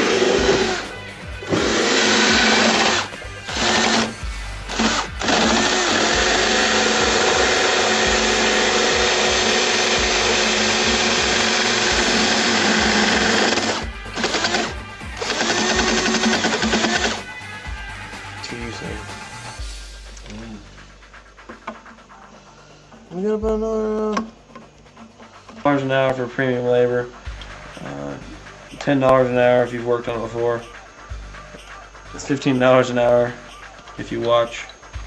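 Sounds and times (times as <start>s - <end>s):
power tool running: 0.0s - 17.4s
background music: 0.0s - 35.0s.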